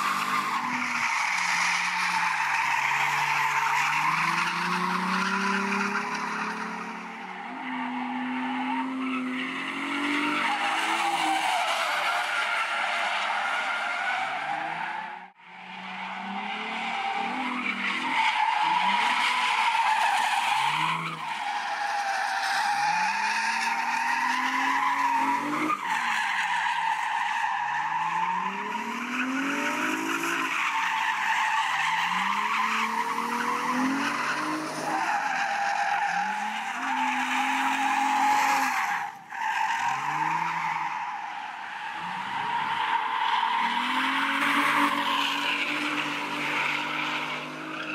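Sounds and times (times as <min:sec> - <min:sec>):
car engine revving: 0:00.0 - 0:11.6, 0:28.0 - 0:47.9.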